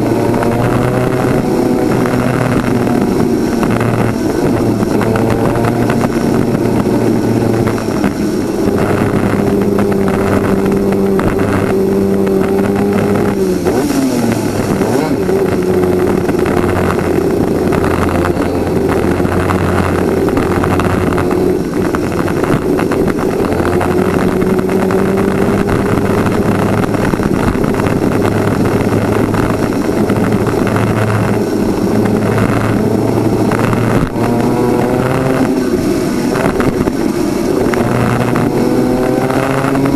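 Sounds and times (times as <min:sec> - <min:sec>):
kart engine at racing speed: 0:00.0 - 0:39.9.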